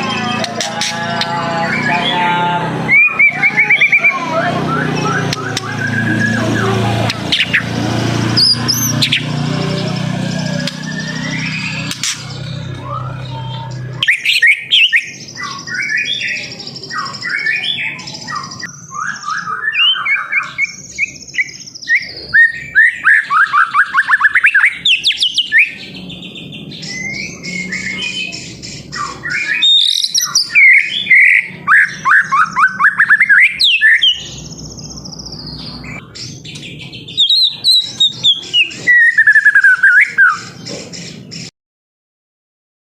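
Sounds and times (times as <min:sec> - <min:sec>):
songbird singing varied whistles: 0:02.9 - 0:07.7, 0:13.0 - 0:25.8, 0:28.9 - 0:34.8, 0:37.2 - 0:40.6.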